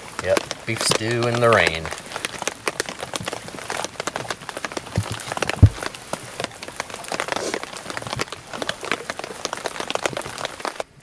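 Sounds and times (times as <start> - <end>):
rain on a tarp: 0.0 - 11.0
heavy low thump: 5.6 - 5.8.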